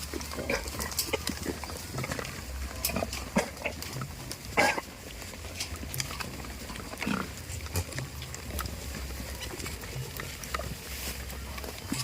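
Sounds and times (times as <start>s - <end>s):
goat grunting: 0.0s - 5.1s.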